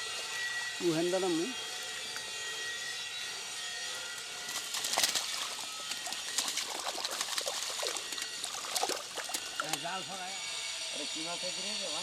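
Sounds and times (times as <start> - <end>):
water splashing: 4.6 - 9.8.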